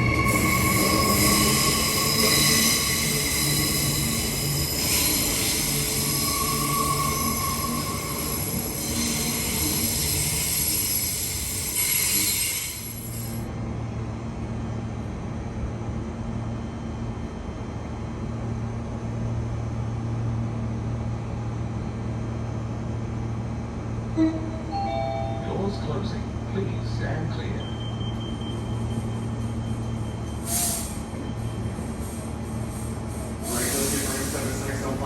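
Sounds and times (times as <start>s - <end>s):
train wheel squeal: 0.0s - 13.4s, 27.4s - 35.0s
high-pitched train running noise: 0.0s - 13.5s, 23.9s - 35.0s.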